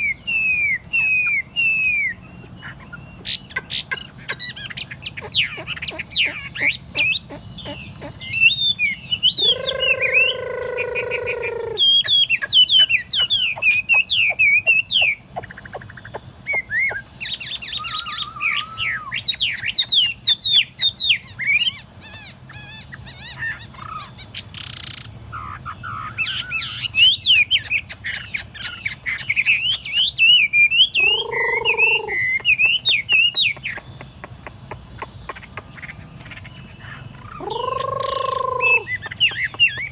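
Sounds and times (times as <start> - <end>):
bird singing whistled phrases: 0.0 - 2.3, 8.4 - 15.2, 16.5 - 25.0, 26.0 - 33.6, 37.1 - 39.9.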